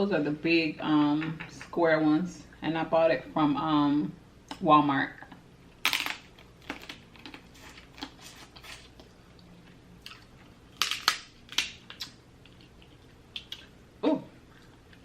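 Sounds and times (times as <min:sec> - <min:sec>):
food cracking and crunching: 0:05.8 - 0:13.8.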